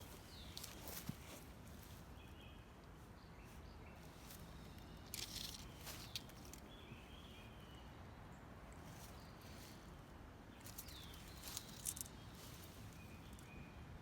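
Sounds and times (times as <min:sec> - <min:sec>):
faint outdoor ambience: 0:00.0 - 0:14.0
rustling or crackling: 0:05.1 - 0:06.7, 0:10.6 - 0:12.9.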